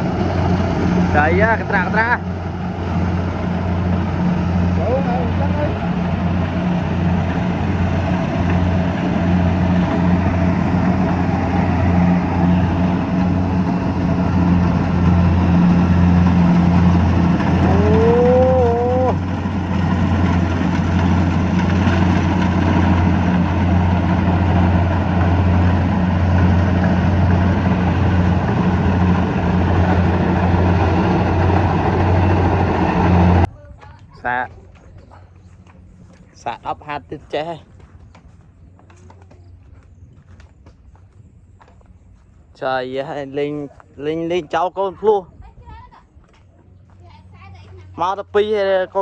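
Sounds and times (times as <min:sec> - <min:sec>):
threshing noise: 0:00.0 - 0:33.5
diesel engine humming: 0:00.0 - 0:49.0.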